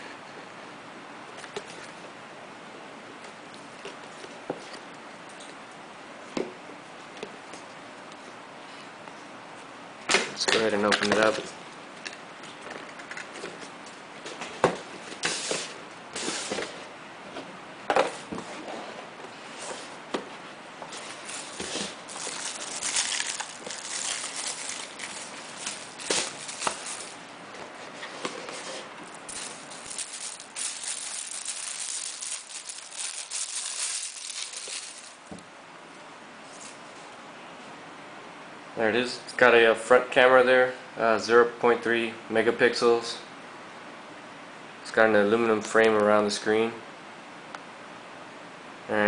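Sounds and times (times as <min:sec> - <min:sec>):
packaging scraping and rustling: 0:20.9 - 0:35.3.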